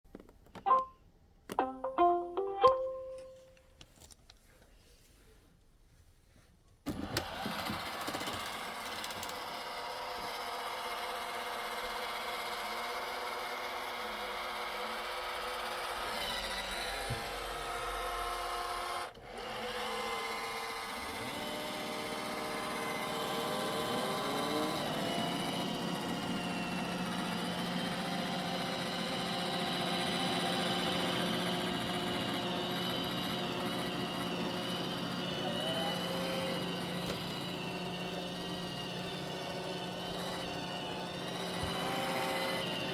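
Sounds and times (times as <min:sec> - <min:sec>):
robot vacuum motor whirring: 0:06.9 - 0:42.9.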